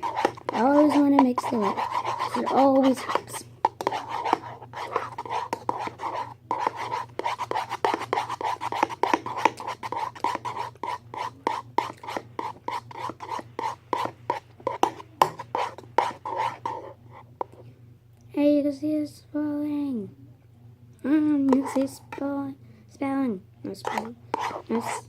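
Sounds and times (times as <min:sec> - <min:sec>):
utensil scraping and clicking in bowl: 0:00.0 - 0:17.6, 0:21.5 - 0:22.0, 0:23.7 - 0:25.0.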